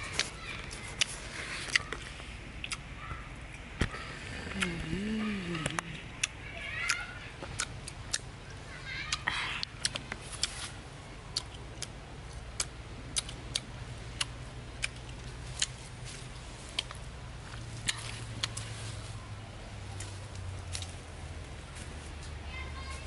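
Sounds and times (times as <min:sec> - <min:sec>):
low steady hum: 0:00.0 - 0:23.0
person chewing with smacks: 0:00.2 - 0:02.9, 0:03.5 - 0:08.3, 0:09.1 - 0:18.8.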